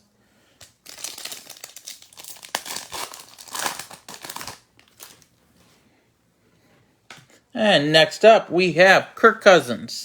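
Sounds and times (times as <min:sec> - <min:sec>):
foil wrapper crinkling and tearing: 0:00.6 - 0:05.3.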